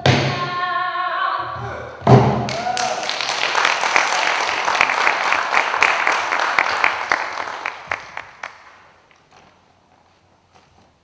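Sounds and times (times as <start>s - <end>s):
audience applauding: 2.5s - 9.2s.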